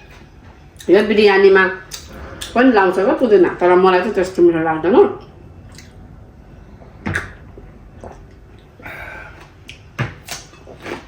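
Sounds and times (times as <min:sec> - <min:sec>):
quiet eating sounds: 0:06.7 - 0:11.0.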